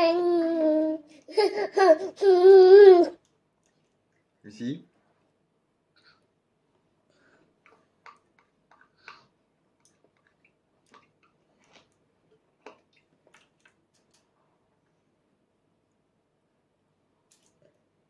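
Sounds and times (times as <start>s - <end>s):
toddler chewing mouth clicks: 7.6s - 12.0s.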